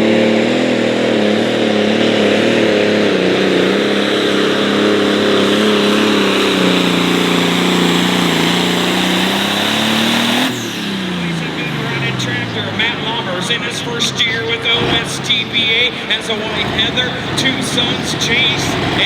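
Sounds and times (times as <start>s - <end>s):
tractor engine running hard: 0.0s - 19.0s.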